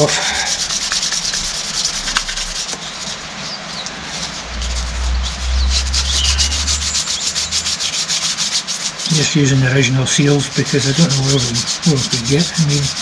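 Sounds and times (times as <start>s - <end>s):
hand sanding strokes: 0.0s - 13.0s
low rumble: 3.4s - 8.5s.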